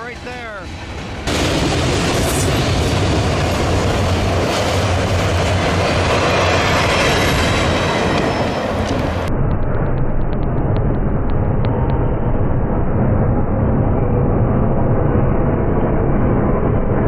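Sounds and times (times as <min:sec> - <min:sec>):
train wheels clattering on rails: 0:00.1 - 0:09.3.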